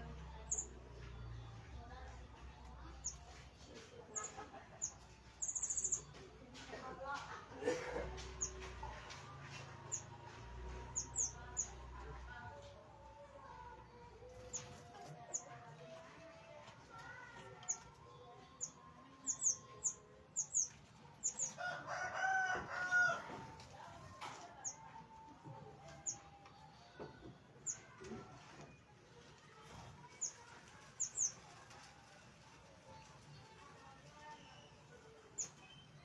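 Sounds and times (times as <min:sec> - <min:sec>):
small birds chirping: 0:00.0 - 0:07.3, 0:08.2 - 0:12.6, 0:13.2 - 0:21.7, 0:29.1 - 0:36.0.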